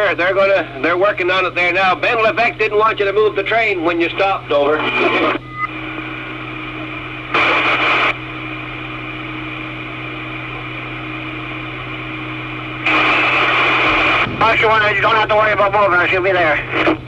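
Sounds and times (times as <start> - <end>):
radio hum: 0.0 - 17.0
radio static hiss bursts: 4.2 - 8.2, 12.4 - 17.0.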